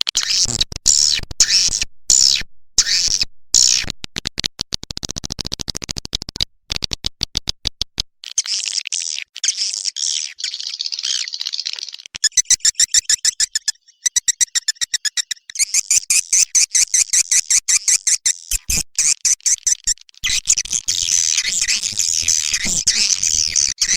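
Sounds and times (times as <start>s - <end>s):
swiftlet calls: 12.2s - 23.9s
sharp clicks: 17.7s - 23.7s
high twittering chatter: 18.5s - 23.9s.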